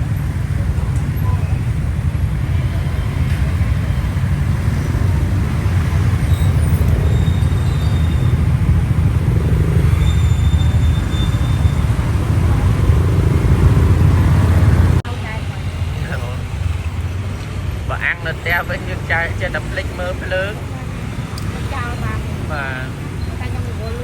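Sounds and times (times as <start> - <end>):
wind rumble on microphone: 0.0 - 15.1
motorcycle engine: 0.0 - 24.0
street traffic: 0.0 - 24.0.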